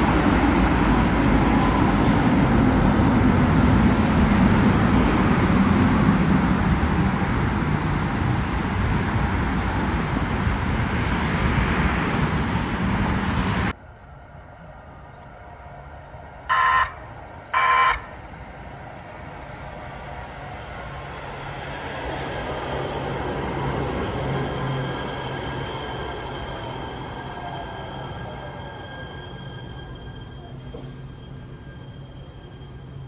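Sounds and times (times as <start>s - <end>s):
train rumbling past: 0.0s - 33.0s
train horn toots: 16.5s - 18.2s.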